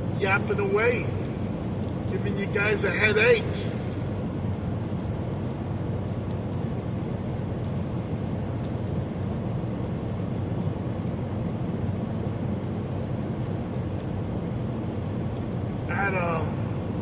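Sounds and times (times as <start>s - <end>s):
truck cab road and engine drone: 0.0s - 17.0s.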